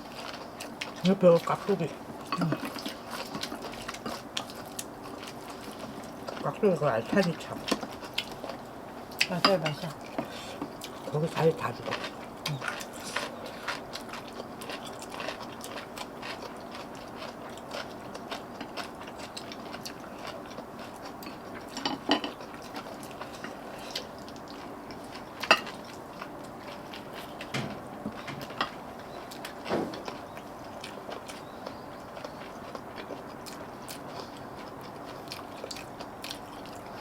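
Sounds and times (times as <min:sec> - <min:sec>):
chewing: 0:00.0 - 0:37.0.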